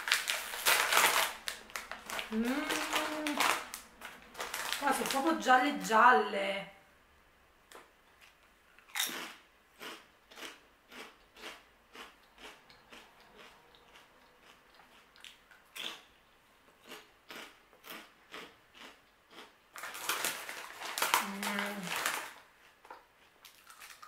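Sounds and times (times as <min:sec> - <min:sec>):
crunchy snack chewing: 0:08.2 - 0:16.1, 0:16.8 - 0:24.0.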